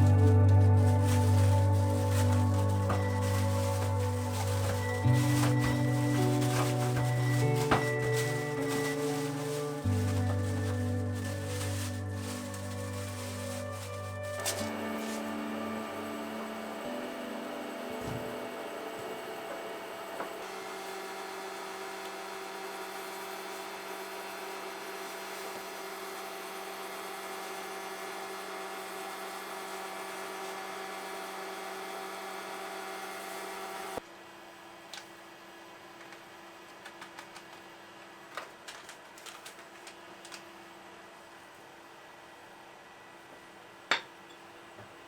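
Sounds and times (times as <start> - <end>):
appliance motor humming: 0.0 - 34.0.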